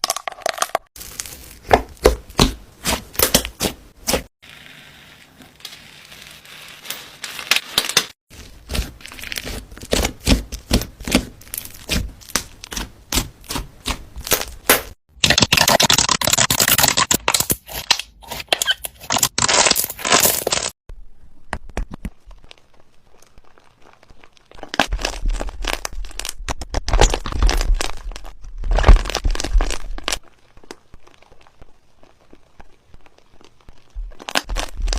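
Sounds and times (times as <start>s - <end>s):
slime clicking and crackling: 21.9s - 34.9s.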